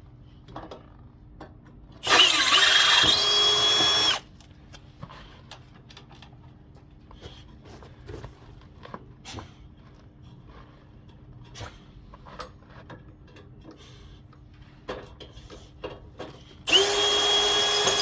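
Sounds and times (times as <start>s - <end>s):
power drill motor whine: 2.0s - 4.2s, 16.7s - 18.0s.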